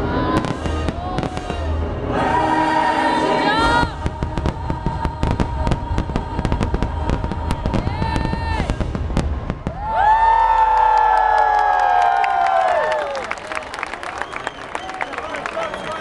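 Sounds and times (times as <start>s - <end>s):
fireworks bangs: 0.0s - 10.9s.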